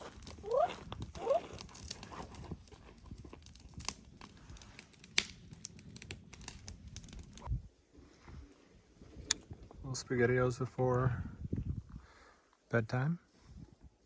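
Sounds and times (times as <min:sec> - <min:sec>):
crackling and rustling clicks: 0:00.0 - 0:07.5.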